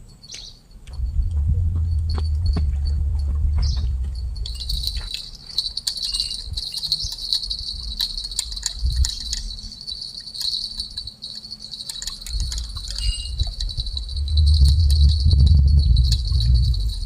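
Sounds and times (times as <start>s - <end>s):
high-pitched insect chorus: 0.0s - 17.0s
low rumble: 0.8s - 5.1s, 12.3s - 17.0s.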